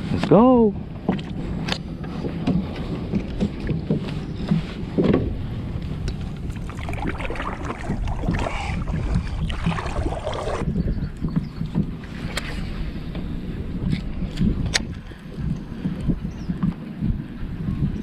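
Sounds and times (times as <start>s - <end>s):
wind rumbling on microphone: 0.0s - 18.0s
water splashing: 6.2s - 10.6s.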